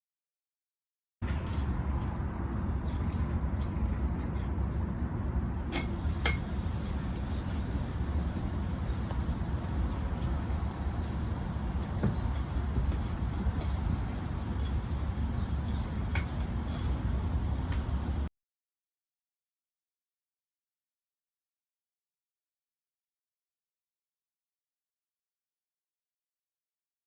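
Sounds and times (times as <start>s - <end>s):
city traffic: 1.2s - 18.3s
wind: 1.2s - 18.3s.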